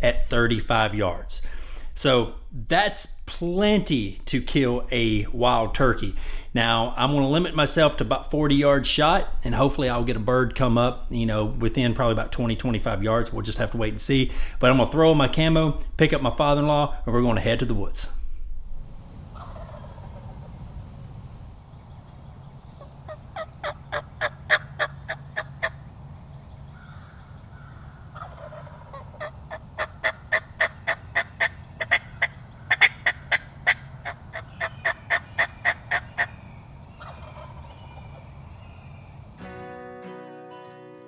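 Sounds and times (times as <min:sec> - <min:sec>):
steady low rumble: 0:08.0 - 0:39.4
turkey yelping: 0:19.2 - 0:39.4.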